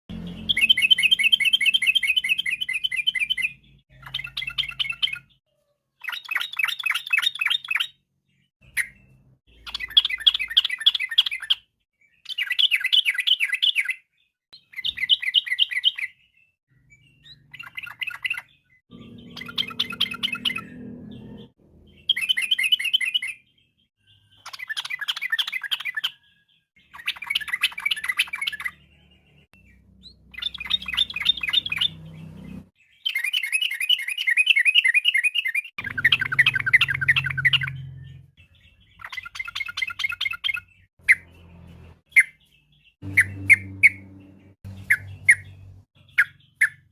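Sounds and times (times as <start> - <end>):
bird singing chattering phrases: 6.0 - 26.2, 29.6 - 46.9.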